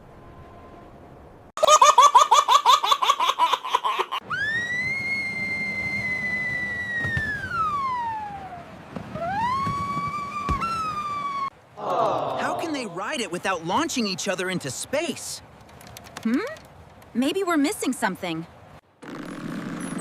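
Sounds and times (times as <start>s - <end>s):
cartoon falling whistle: 4.3s - 8.6s, 9.2s - 11.5s
rising whistle: 4.3s - 8.6s, 9.2s - 11.5s.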